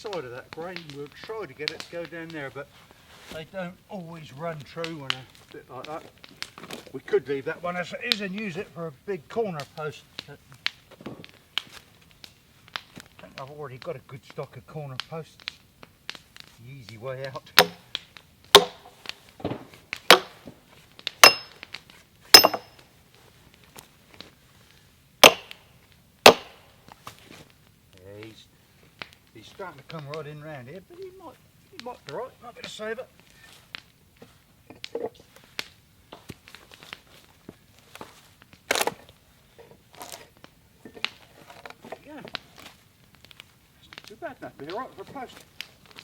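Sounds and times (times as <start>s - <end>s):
log cracking as it splits: 0.0s - 46.0s
sledgehammer striking steel wedge: 17.6s - 17.8s, 18.6s - 18.9s, 20.1s - 20.4s, 21.2s - 21.6s, 22.4s - 22.8s, 25.2s - 25.6s, 26.3s - 26.6s.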